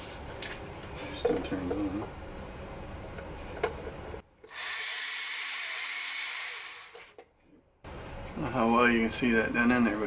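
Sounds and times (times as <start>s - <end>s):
electric motor hissing whir: 4.5s - 7.0s.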